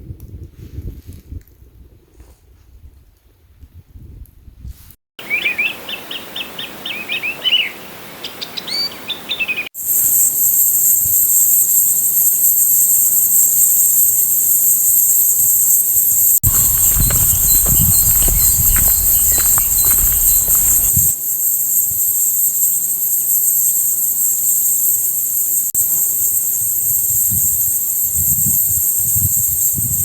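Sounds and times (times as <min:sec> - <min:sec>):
songbird chirping: 0:16.4 - 0:21.2
high-pitched insect buzzing: 0:16.5 - 0:29.9.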